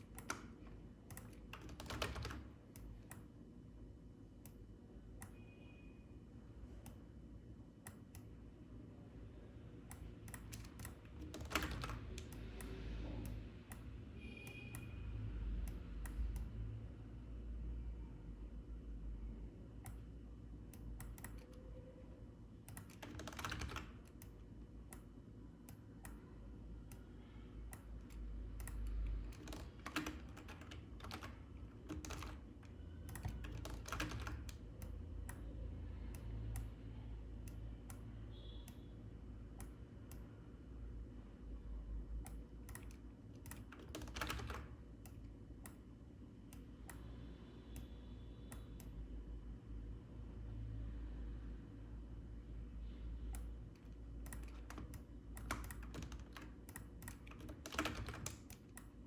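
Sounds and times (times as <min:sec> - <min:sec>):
computer keyboard keystrokes: 0:00.0 - 0:03.3, 0:09.8 - 0:14.9, 0:20.7 - 0:21.6, 0:22.6 - 0:35.5, 0:42.2 - 0:45.8, 0:53.3 - 0:59.0
low steady hum: 0:00.0 - 0:59.0.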